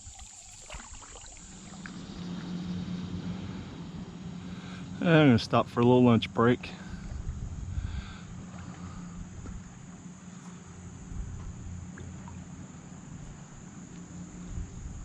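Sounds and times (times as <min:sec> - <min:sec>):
high-pitched insect drone: 0:00.0 - 0:11.0
low even rumble: 0:00.0 - 0:15.0.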